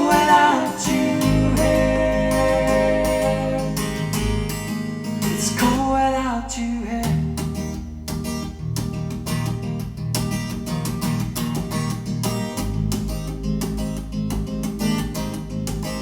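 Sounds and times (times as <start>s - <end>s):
bass line: 0.0s - 4.7s
strummed acoustic guitar: 0.0s - 16.0s.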